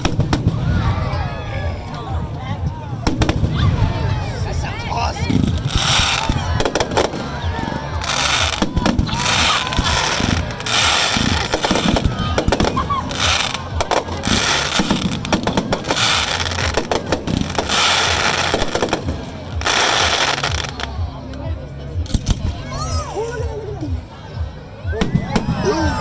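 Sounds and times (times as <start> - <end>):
fireworks bangs: 0.0 - 21.0
fireworks crackling: 0.0 - 22.6.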